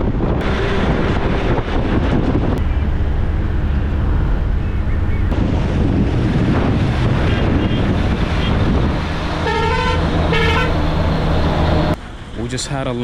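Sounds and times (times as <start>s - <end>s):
road traffic with engine hum: 0.0s - 13.0s
vehicle horn honking: 9.4s - 10.8s.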